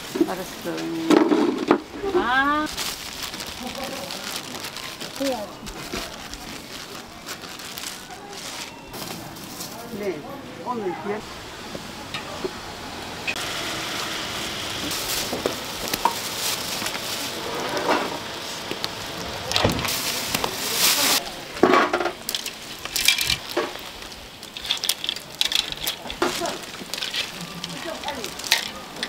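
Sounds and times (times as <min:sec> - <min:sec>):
food sizzling on a griddle: 0:13.0 - 0:21.4, 0:22.0 - 0:29.0.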